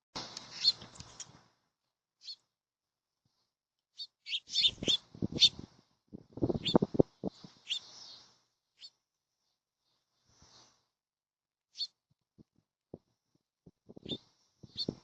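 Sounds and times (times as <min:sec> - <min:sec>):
songbirds chirping: 0:00.2 - 0:01.3, 0:02.2 - 0:02.5, 0:04.0 - 0:05.6, 0:06.3 - 0:10.8, 0:11.8 - 0:12.0, 0:13.9 - 0:15.0.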